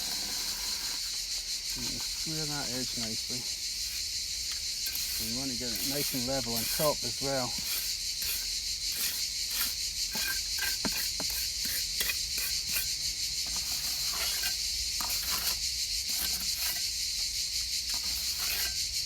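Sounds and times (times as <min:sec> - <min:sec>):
steady high hiss: 0:00.0 - 0:10.1
trowel scraping wet concrete: 0:00.0 - 0:17.2, 0:17.8 - 0:19.0.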